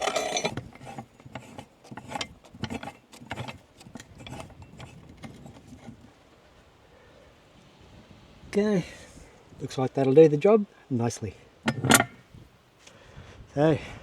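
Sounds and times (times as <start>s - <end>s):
metal bracket clinking: 0.0s - 6.0s, 11.7s - 12.2s.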